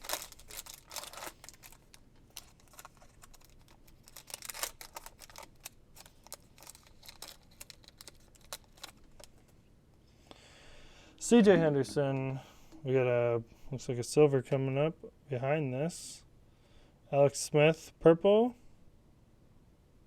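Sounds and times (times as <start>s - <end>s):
cards clicking and rustling: 0.0s - 9.4s.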